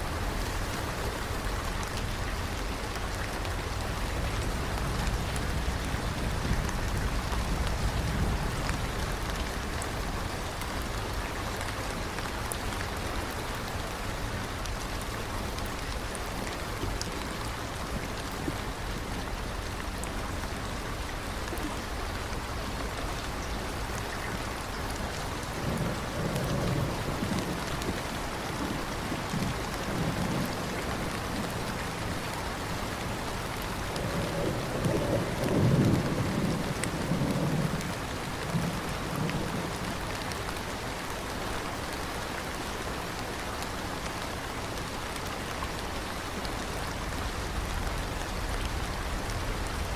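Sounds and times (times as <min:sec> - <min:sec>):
heavy rain falling: 0:00.0 - 0:49.9
distant thunder rumbling: 0:00.2 - 0:10.4, 0:21.4 - 0:40.2.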